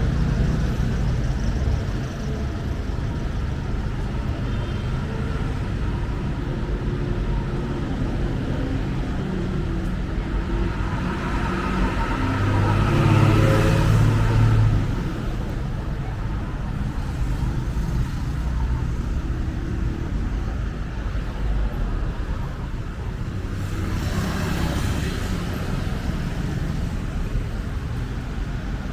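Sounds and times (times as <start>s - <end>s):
traffic rumble: 0.0s - 28.9s.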